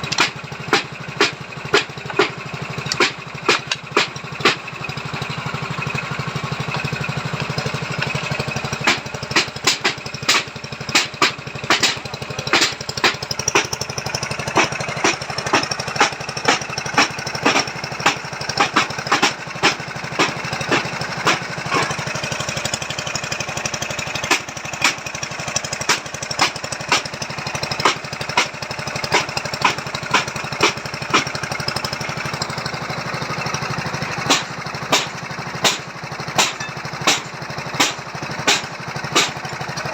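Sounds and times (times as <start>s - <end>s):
boring machine engine running: 0.0s - 39.9s
sharp knocks: 8.8s - 13.7s, 14.6s - 22.0s, 34.3s - 35.8s, 36.4s - 39.6s.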